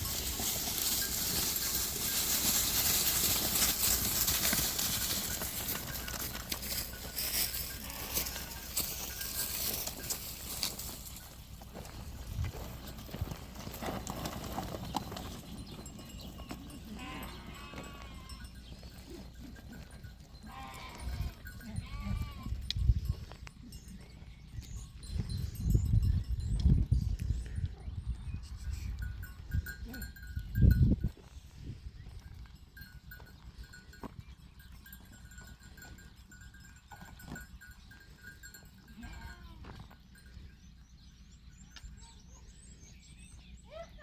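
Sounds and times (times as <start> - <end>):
sheep and goats bleating: 0.0 - 11.0, 16.4 - 22.7, 38.0 - 40.0
sheep bleating: 7.8 - 8.8, 16.9 - 18.4, 20.4 - 22.5.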